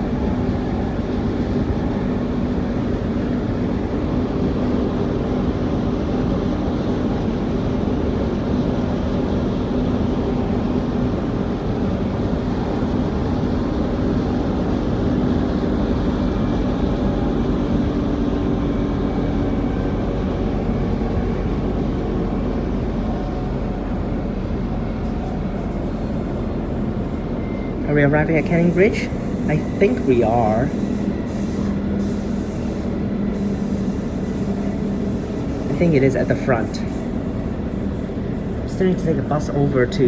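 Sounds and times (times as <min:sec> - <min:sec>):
electric train interior rumble: 0:00.0 - 0:40.0.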